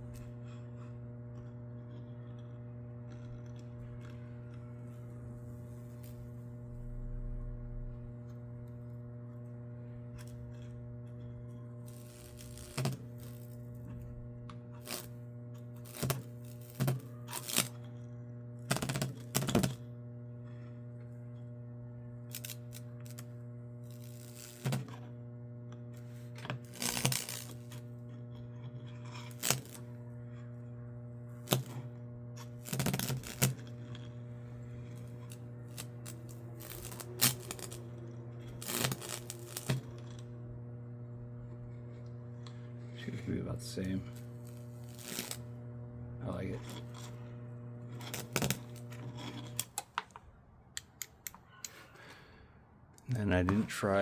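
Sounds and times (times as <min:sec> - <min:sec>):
electric arcing crackles and pops: 0:00.0 - 0:50.1
transformer humming: 0:02.4 - 0:17.8, 0:25.7 - 0:49.9.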